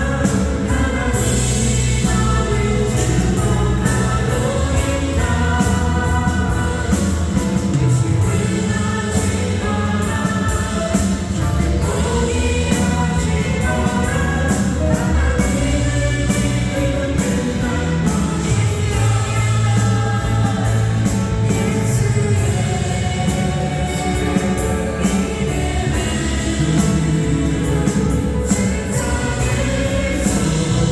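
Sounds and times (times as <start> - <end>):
band accompaniment with steady beat: 0.0 - 30.9
voices singing a praise song: 0.0 - 30.9.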